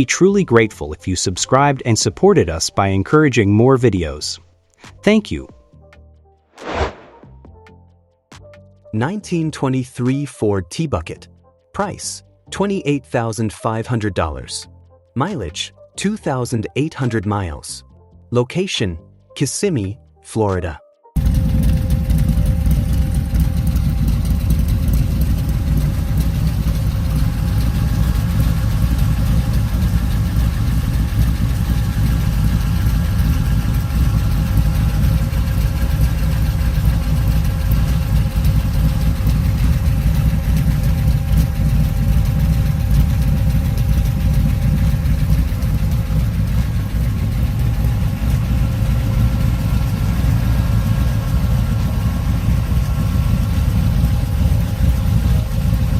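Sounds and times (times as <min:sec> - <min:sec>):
car engine idling: 0:21.2 - 0:55.9.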